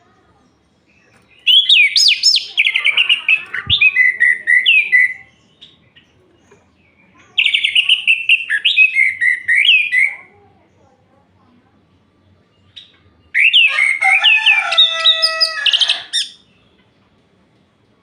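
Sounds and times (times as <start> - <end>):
thrush singing whistled notes: 1.4 - 2.8, 7.5 - 10.1, 13.3 - 14.0.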